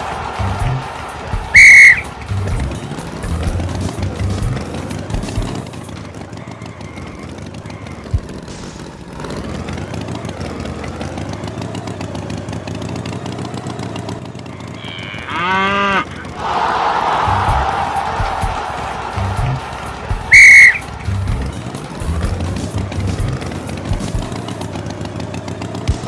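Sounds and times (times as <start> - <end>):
cartoon bull mooing: 14.6 - 16.4.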